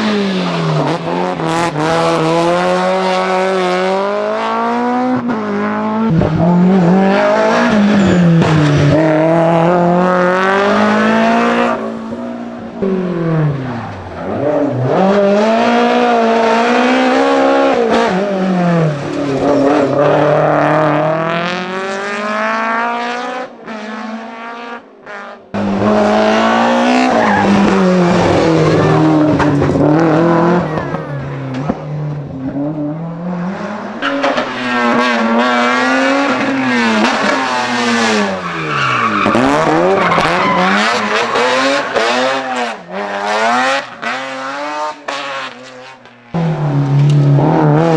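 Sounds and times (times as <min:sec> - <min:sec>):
car engine revving: 0:00.0 - 0:47.9
tyre squeal: 0:07.6 - 0:09.0, 0:26.8 - 0:29.2.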